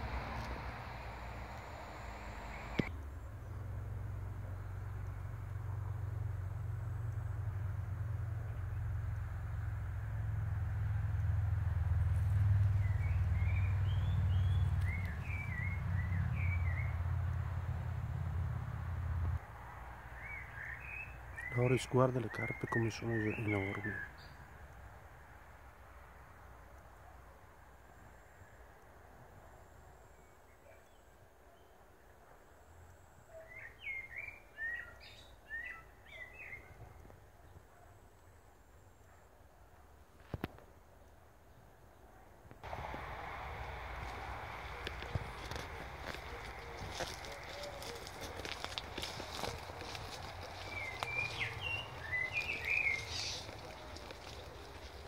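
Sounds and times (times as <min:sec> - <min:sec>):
low rumble: 0:00.0 - 0:19.4
faint background noise: 0:00.0 - 0:55.0
songbird chirping: 0:12.2 - 0:17.4, 0:20.0 - 0:24.6, 0:32.8 - 0:37.7, 0:41.5 - 0:55.0
small bird chirping: 0:44.6 - 0:55.0.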